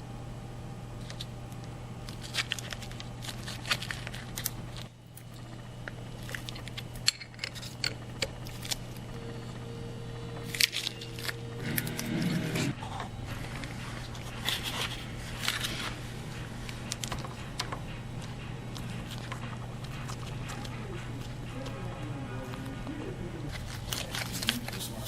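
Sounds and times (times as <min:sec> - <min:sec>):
low hum: 0:00.0 - 0:25.0
hand tools clicking and tapping: 0:16.3 - 0:22.6.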